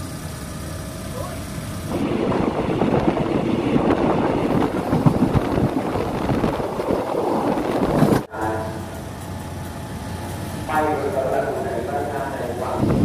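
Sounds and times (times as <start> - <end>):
train rumbling on rails: 0.0 - 13.0
wind buffeting microphone: 1.9 - 8.3, 12.6 - 13.0.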